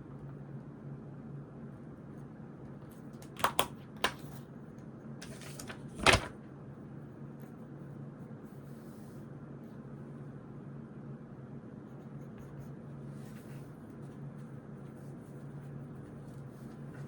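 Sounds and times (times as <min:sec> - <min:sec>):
paper rustling: 0:05.2 - 0:06.4.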